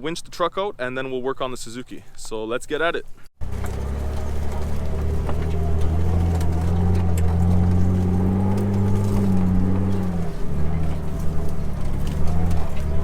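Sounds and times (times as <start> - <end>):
car engine running at low revs: 3.4 - 13.0.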